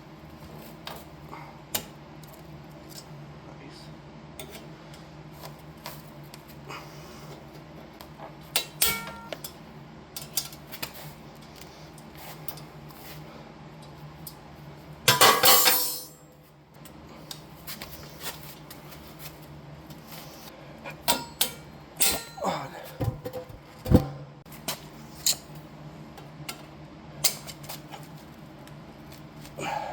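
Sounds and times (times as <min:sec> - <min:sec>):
metal tools clinking: 0:15.1 - 0:16.2.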